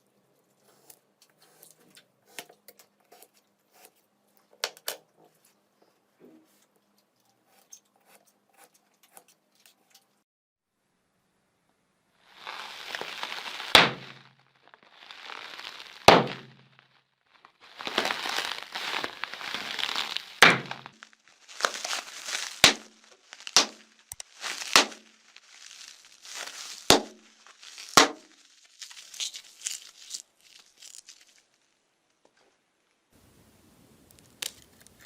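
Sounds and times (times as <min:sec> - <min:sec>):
slime squeezed crackling: 0:12.3 - 0:31.7
slime air pockets popping: 0:12.8 - 0:14.2, 0:15.1 - 0:16.6, 0:17.7 - 0:28.3.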